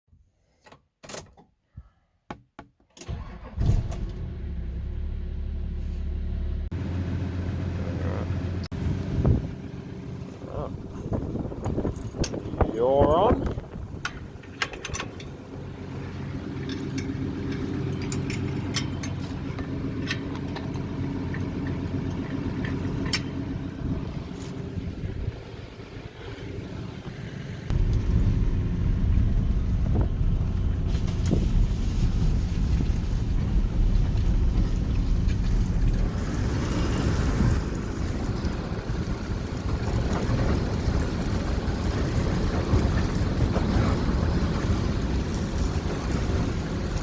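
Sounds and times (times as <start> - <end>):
engine starting and running: 3.0 - 47.0
sharp clicks and rattles: 11.1 - 24.6
light clinks and ticks: 16.1 - 23.5.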